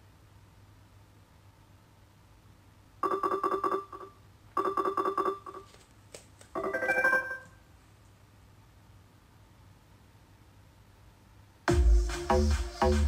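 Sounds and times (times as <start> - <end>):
rapid repeated beeps: 3.0 - 5.6.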